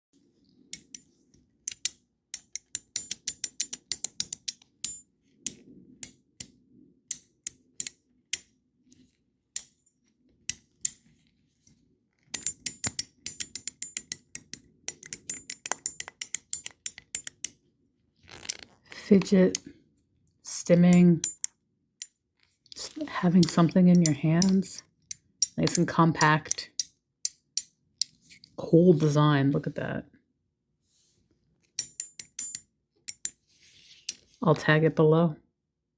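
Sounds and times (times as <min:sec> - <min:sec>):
metal fidget toy clicking: 0:00.7 - 0:08.5, 0:12.3 - 0:17.6, 0:19.2 - 0:19.7, 0:20.9 - 0:22.2, 0:22.8 - 0:28.2, 0:31.8 - 0:33.4.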